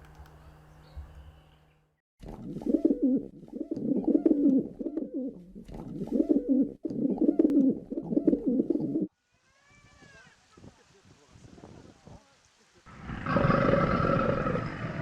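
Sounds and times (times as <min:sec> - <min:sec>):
pigeon cooing: 0:02.5 - 0:09.1, 0:12.9 - 0:15.0.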